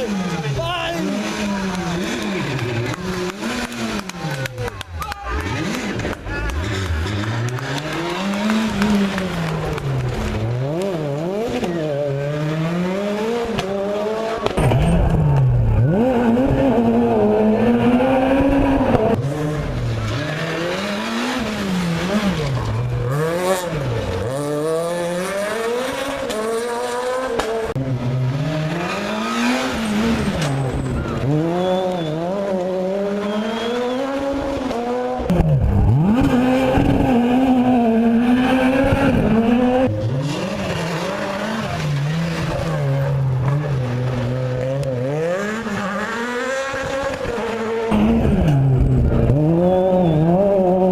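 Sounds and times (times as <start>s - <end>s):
rally car engines revving: 0.0s - 50.9s
tyre squeal: 29.8s - 32.4s.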